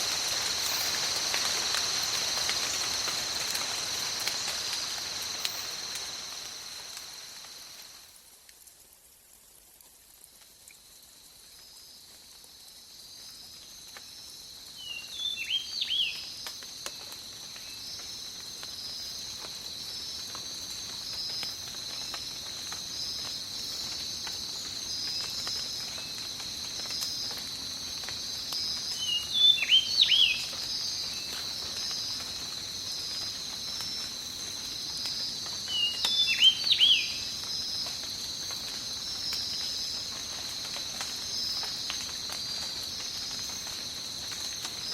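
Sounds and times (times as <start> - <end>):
faint patter of rain: 0.0 - 44.9
high insect chorus: 0.0 - 44.9
bird whistled calls: 29.0 - 30.4, 35.8 - 37.2.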